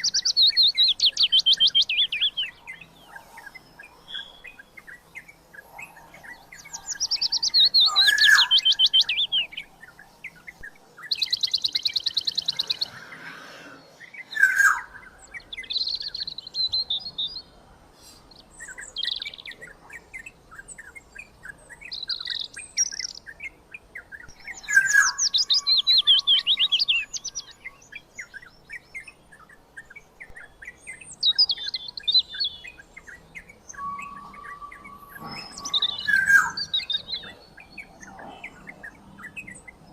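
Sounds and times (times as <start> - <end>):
birds chattering calls: 0.0 - 39.9
low steady bird whistle: 31.2 - 37.6.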